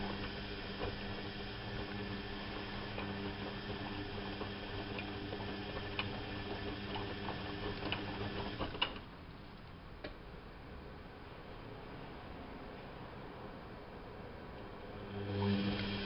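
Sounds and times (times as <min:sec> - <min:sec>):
washing machine motor hum: 0:00.0 - 0:09.0, 0:14.6 - 0:16.0.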